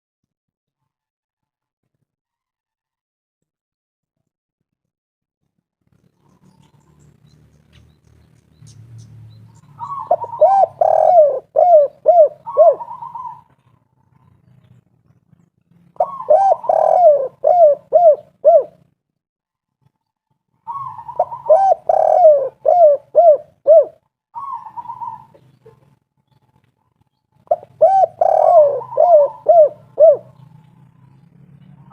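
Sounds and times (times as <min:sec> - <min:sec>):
dove cooing: 0:09.5 - 0:14.6, 0:15.9 - 0:18.9, 0:20.6 - 0:26.0, 0:27.4 - 0:31.9.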